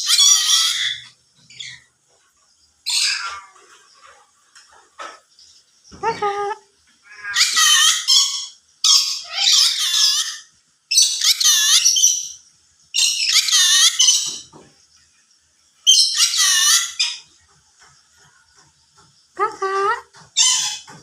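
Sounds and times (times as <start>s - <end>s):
parrot high-pitched calls: 0.0s - 1.9s, 2.8s - 3.7s, 6.0s - 12.4s, 13.0s - 14.5s, 15.9s - 17.3s, 19.4s - 21.0s.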